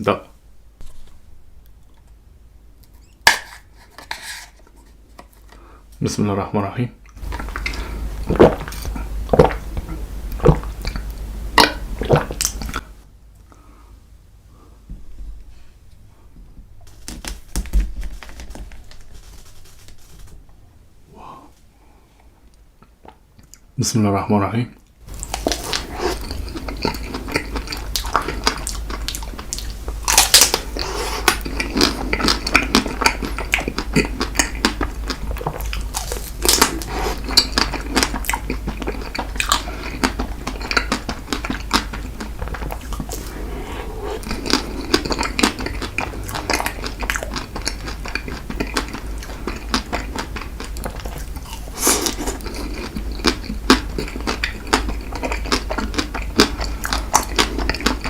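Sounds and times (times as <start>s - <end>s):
steady low hum: 0.0s - 24.2s, 24.8s - 58.0s
chewing and wet mouth sounds: 7.0s - 13.0s, 25.1s - 58.0s.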